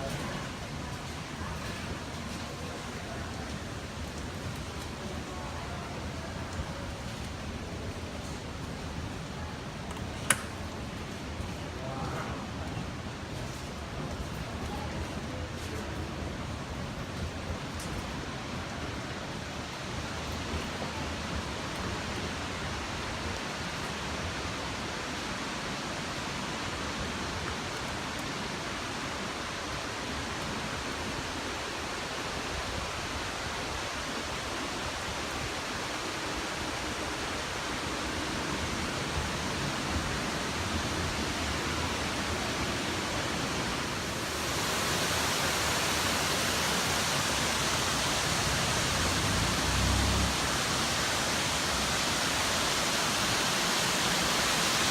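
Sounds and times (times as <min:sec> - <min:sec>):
waterfall rushing: 0:18.5 - 0:54.9.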